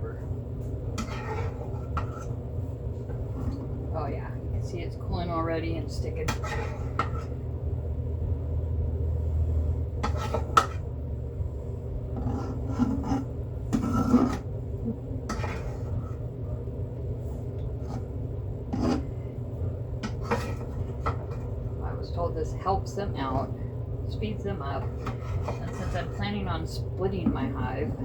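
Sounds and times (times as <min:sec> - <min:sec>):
steady low hum: 0:00.0 - 0:28.0
brush rasping scrapes: 0:01.0 - 0:02.3, 0:24.9 - 0:26.1.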